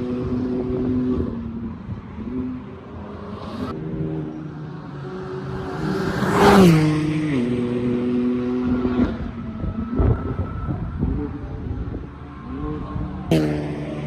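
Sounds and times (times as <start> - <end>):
car engine passing at speed: 0.0 - 14.0.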